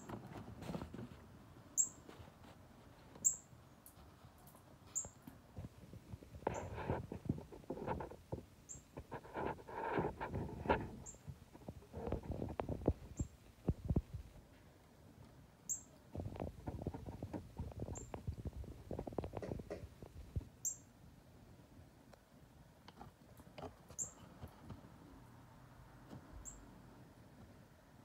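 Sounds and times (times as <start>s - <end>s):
soft rustling and tapping: 0.0s - 1.3s, 2.0s - 14.6s, 16.1s - 20.5s.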